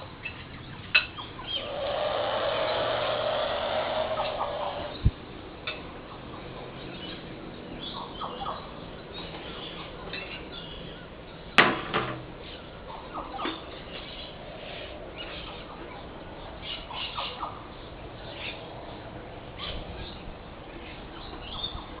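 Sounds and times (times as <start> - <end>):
bird hissing in bursts: 1.6 - 5.1.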